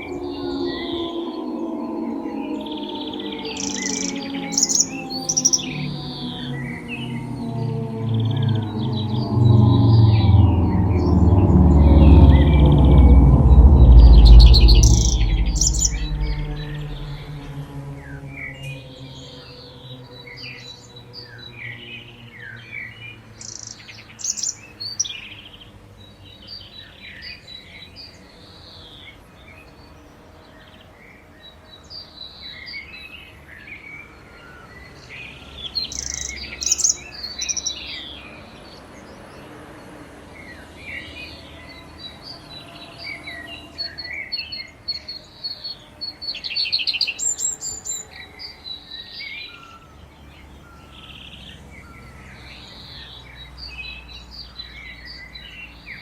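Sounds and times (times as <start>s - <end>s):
distant sirens: 0.0s - 24.8s
songbirds chirping and trilling: 0.0s - 56.0s.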